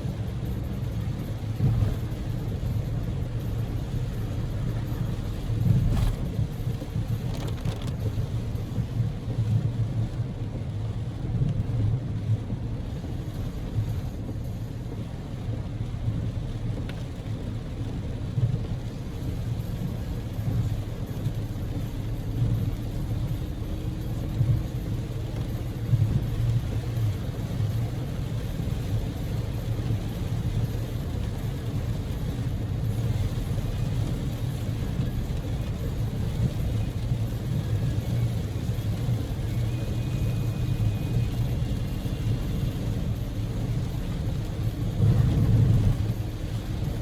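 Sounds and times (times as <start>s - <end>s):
car interior road and engine rumble: 0.0s - 47.0s.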